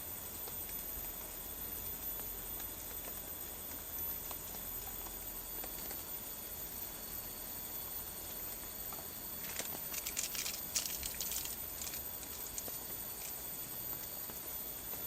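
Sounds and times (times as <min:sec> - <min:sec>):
outdoor background hiss: 0:00.0 - 0:15.0
faint high steady tones: 0:03.5 - 0:15.0
quick crackling clicks: 0:09.4 - 0:13.4.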